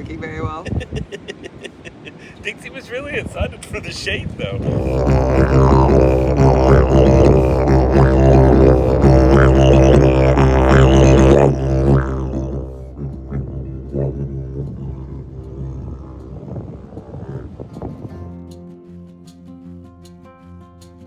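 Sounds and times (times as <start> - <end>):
didgeridoo drone: 4.6 - 18.7.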